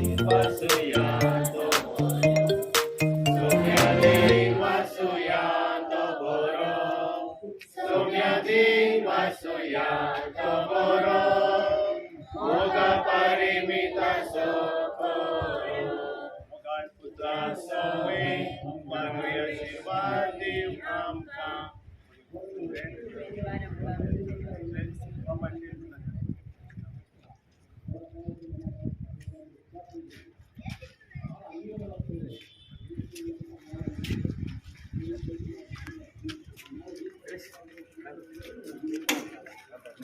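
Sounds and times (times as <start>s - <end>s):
voices chanting in chorus: 0.0s - 2.3s, 3.3s - 16.4s, 17.2s - 21.5s.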